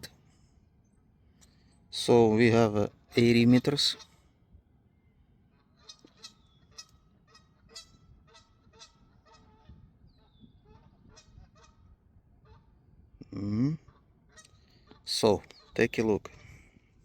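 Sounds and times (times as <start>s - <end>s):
faint goose honking: 3.1s - 4.3s, 5.5s - 12.8s, 13.6s - 16.6s.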